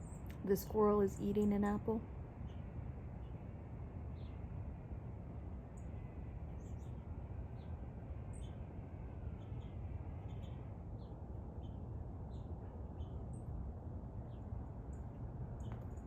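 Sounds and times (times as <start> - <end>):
small birds chirping: 5.8 - 13.6, 14.2 - 16.0.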